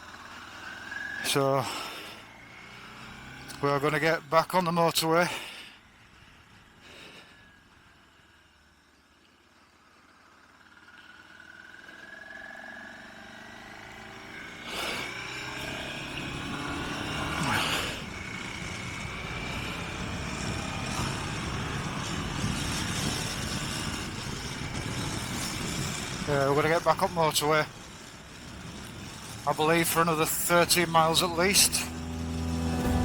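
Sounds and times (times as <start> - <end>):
wind and road noise: 0.0 - 33.0
motorcycle engine accelerating: 2.1 - 3.9, 10.1 - 33.0.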